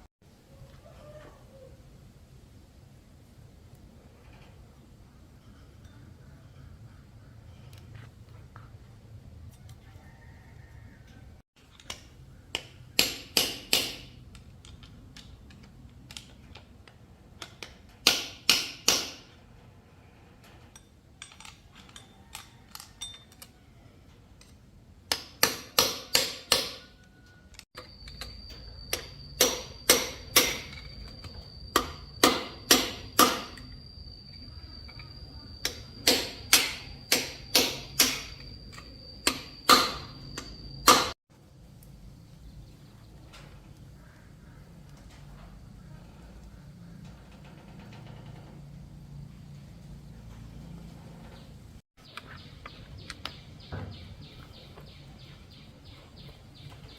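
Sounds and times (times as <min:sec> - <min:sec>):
hammer striking metal: 0:11.9 - 0:14.2, 0:17.6 - 0:19.4, 0:25.1 - 0:27.1, 0:27.8 - 0:33.8, 0:34.8 - 0:41.2.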